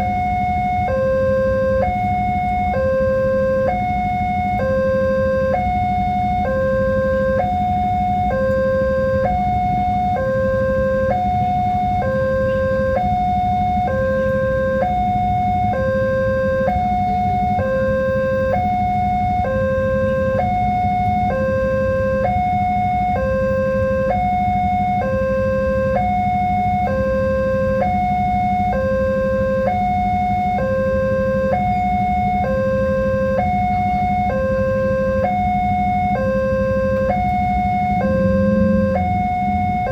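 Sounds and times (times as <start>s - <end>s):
two-tone crossing alarm: 0.0s - 39.9s
low hum and rumble: 33.9s - 39.9s.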